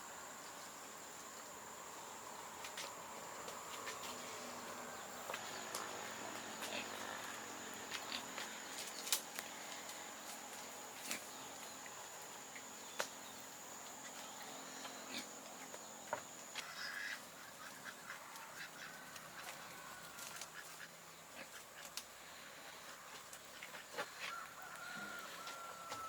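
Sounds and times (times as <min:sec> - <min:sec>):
poultry calling: 0:16.6 - 0:21.8.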